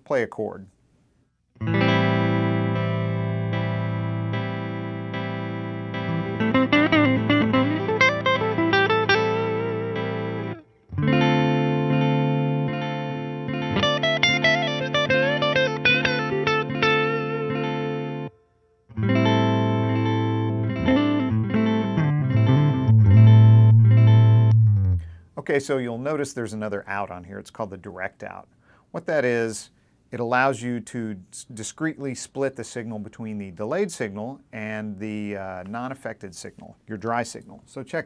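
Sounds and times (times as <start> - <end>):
electric guitar single-note lines: 1.6 - 25.2
sustained electric guitar chord: 18.9 - 25.2.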